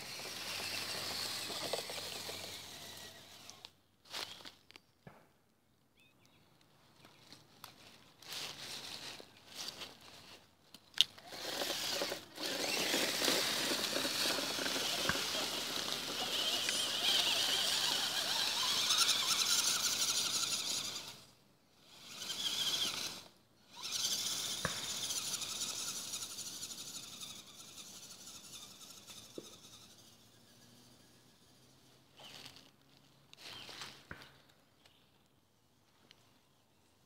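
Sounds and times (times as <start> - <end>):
toy truck motor whining: 0.0 - 4.2, 11.0 - 32.6.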